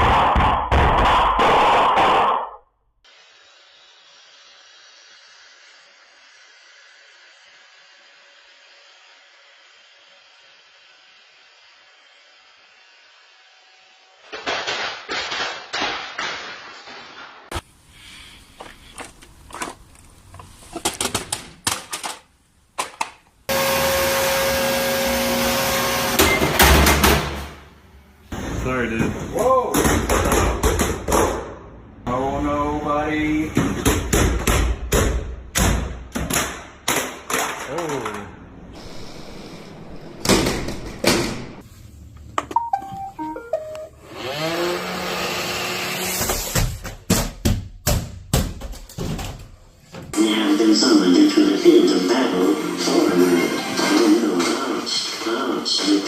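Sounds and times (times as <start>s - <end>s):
electronic beep tune: 42.5s - 44.0s
thuds and clatter of tumbling: 46.6s - 50.1s.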